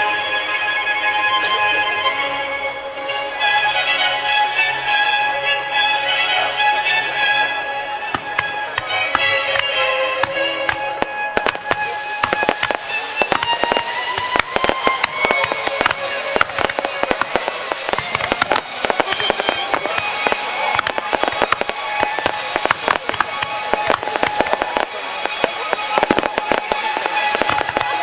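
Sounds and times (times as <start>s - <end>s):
music playing: 0.0s - 28.0s
fireworks bangs and crackles: 6.0s - 28.0s.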